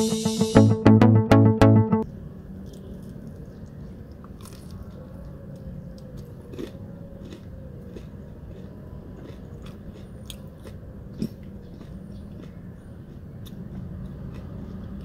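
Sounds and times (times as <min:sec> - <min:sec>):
chewing mouth sounds: 0:06.2 - 0:15.0.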